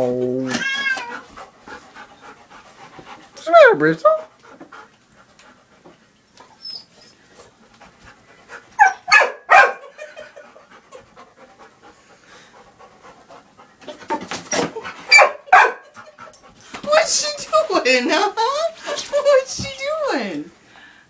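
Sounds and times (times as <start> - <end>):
puppy panting: 1.1 - 19.6
high-pitched puppy calls: 8.8 - 9.9.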